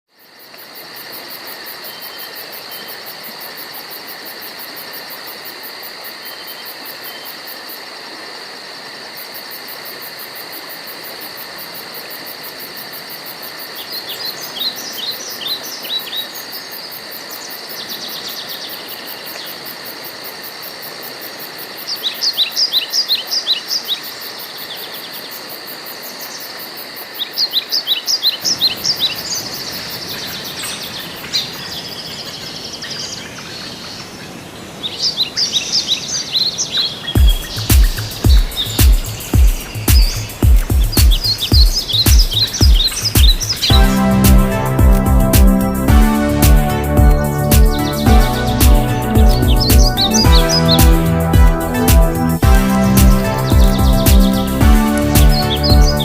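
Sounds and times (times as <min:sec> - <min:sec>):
insect chorus: 0:00.1 - 0:44.8
songbird singing: 0:27.2 - 0:56.0.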